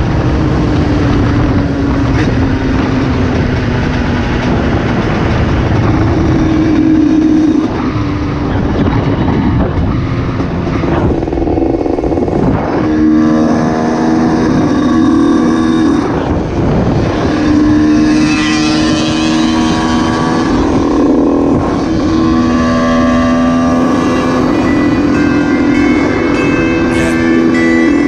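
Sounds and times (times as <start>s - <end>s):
traffic and motorcycle engines: 0.0s - 28.0s
vehicle horns blaring: 12.6s - 28.0s.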